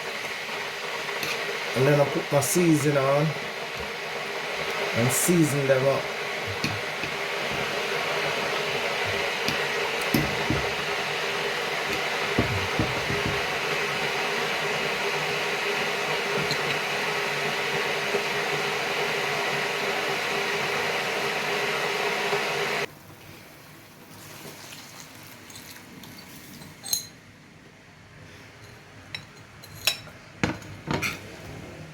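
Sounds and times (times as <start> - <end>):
pot hissing while cooking: 0.0 - 24.9.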